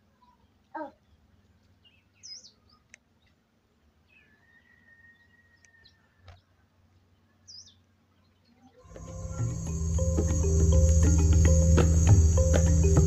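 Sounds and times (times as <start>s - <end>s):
faint birds chirping: 0.0s - 13.0s
long thin steady note: 8.9s - 13.0s.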